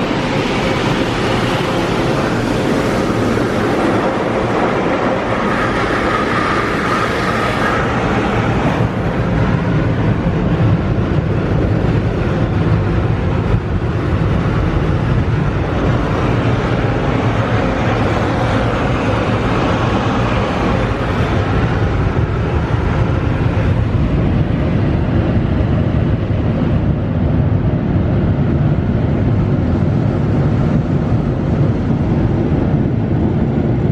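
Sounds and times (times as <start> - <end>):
car wash equipment rushing: 0.0 - 24.0
low rumble: 0.0 - 33.9.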